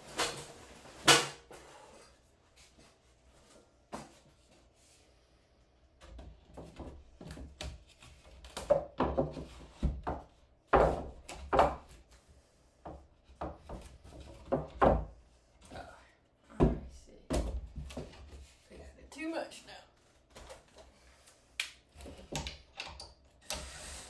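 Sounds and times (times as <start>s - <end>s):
plywood knocks and thumps: 6.0s - 12.0s, 12.9s - 15.1s.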